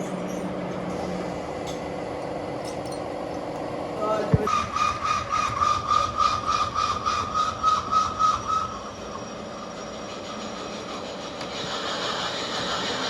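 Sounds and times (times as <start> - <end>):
hiss: 9.5 - 13.0.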